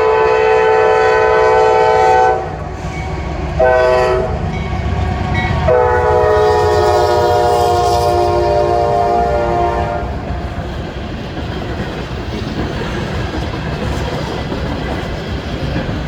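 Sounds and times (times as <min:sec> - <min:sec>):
locomotive air horn blasts: 0:00.0 - 0:10.3
train rumbling: 0:00.0 - 0:16.0.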